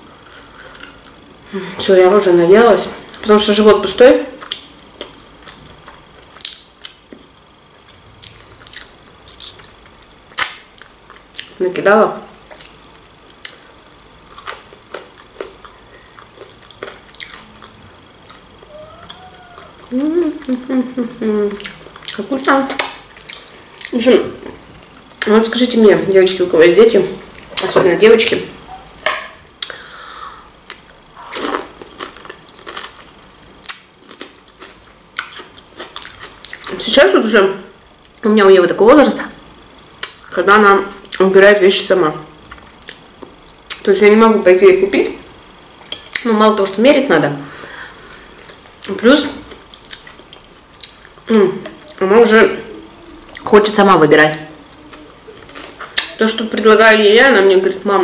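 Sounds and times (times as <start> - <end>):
crunching while eating: 0.2 - 1.2, 4.3 - 11.6, 12.3 - 20.7, 30.7 - 36.8, 48.4 - 52.0, 55.4 - 56.2.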